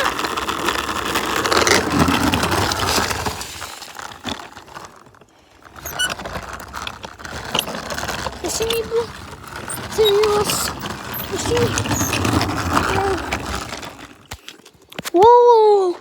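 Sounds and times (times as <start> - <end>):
trike wheels skidding on pavement: 0.0 - 14.8
squeaks and clicks: 5.8 - 15.2.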